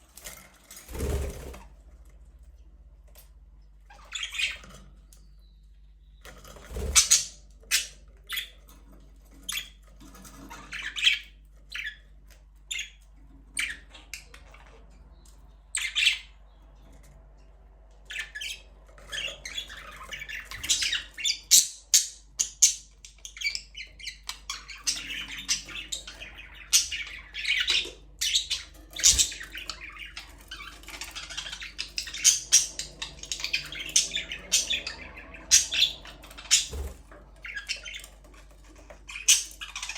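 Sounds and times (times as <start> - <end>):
budgerigars chirping: 3.9 - 4.7, 6.7 - 8.6, 9.4 - 12.1, 12.7 - 16.5, 18.1 - 39.9.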